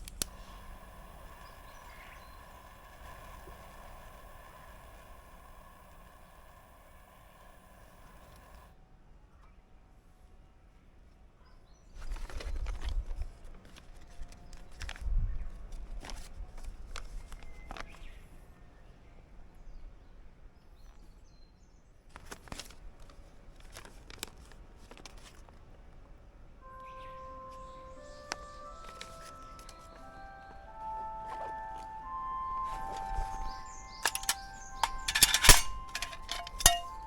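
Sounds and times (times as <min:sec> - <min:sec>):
sharp clicks: 0:00.0 - 0:08.7, 0:32.7 - 0:37.0.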